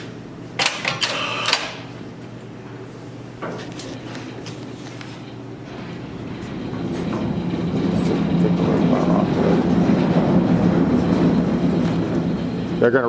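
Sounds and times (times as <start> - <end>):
diesel engine running: 5.3 - 13.0.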